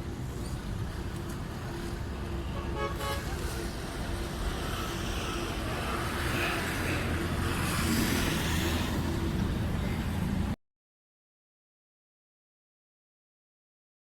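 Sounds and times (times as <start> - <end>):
road traffic: 0.0 - 10.6.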